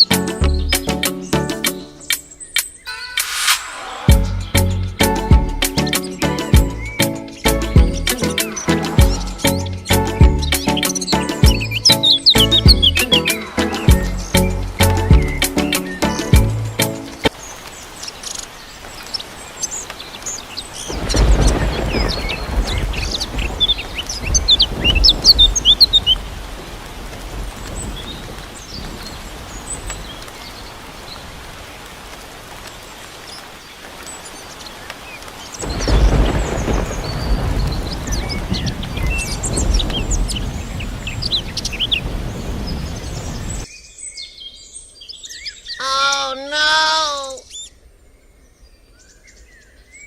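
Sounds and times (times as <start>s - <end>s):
birds chirping: 0.0s - 26.5s, 32.7s - 50.0s
low rumbling noise: 2.9s - 5.6s.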